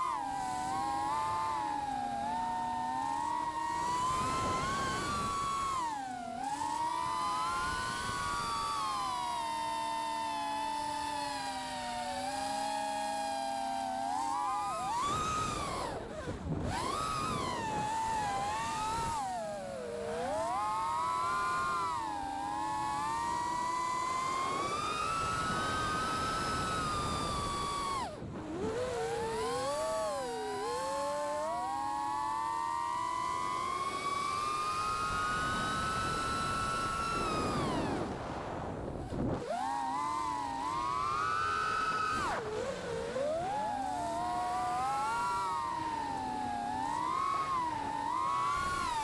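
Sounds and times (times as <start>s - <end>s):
quadcopter motors whining: 0.0s - 49.0s.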